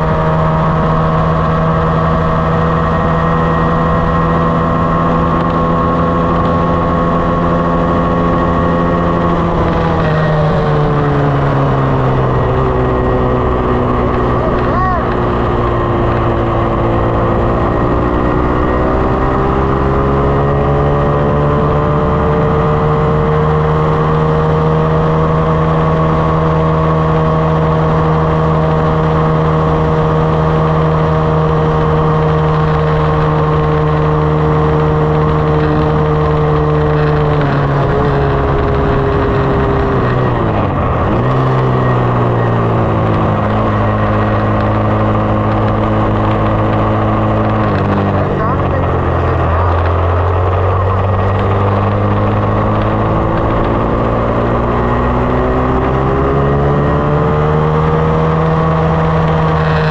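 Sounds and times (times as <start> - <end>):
dirt bike engine pulling: 29.1 - 59.9.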